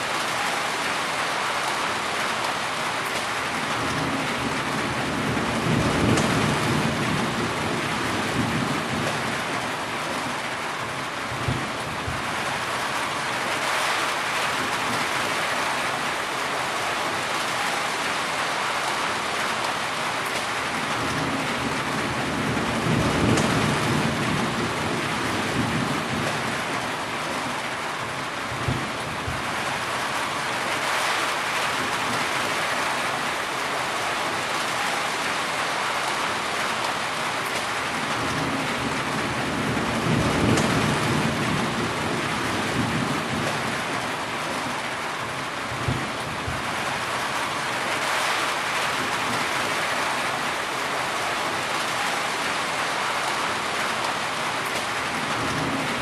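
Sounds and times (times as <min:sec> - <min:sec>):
heavy rain falling: 0:00.0 - 0:56.0
thunder rolling: 0:21.0 - 0:26.5, 0:38.1 - 0:43.9.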